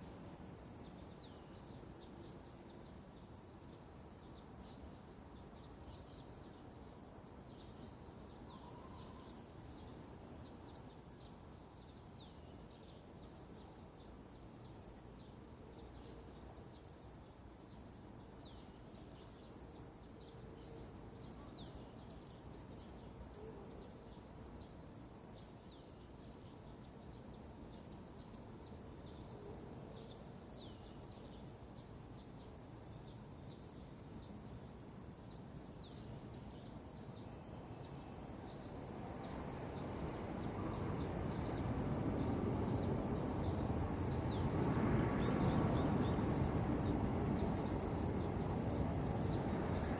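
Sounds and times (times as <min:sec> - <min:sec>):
low background hiss: 0:00.0 - 0:49.9.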